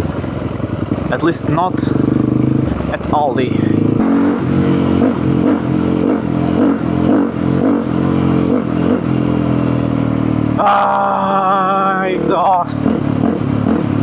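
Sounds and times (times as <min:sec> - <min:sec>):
motorcycle engine idling: 0:00.0 - 0:04.0.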